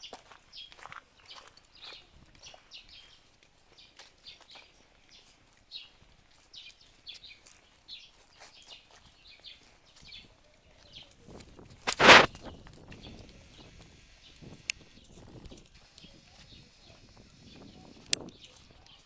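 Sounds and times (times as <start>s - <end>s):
faint bird chirping: 0.0s - 11.2s.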